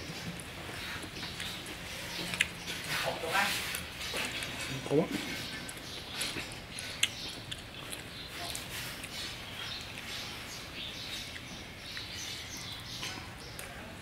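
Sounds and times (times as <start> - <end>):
wet chewing crackles: 0.0 - 13.8
mouth clicks: 6.9 - 9.2.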